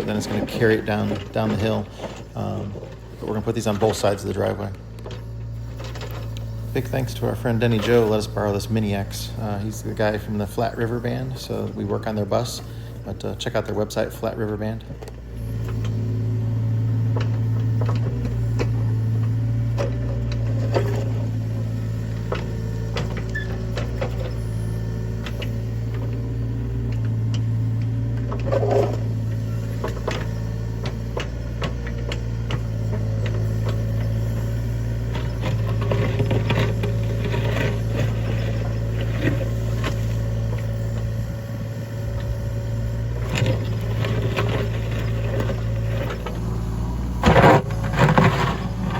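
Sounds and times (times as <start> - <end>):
excavator diesel engine running: 0.0 - 48.9
knocks and clanks: 47.1 - 48.9.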